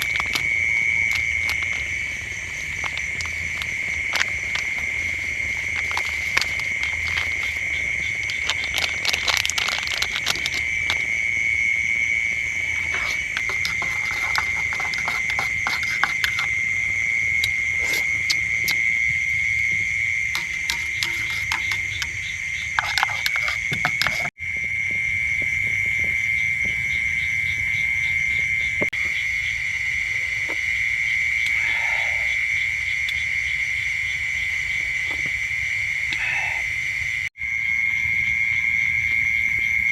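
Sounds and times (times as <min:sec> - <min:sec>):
frogs and insects trilling: 0:00.0 - 0:39.9
sharp ticks and taps: 0:20.3 - 0:24.3.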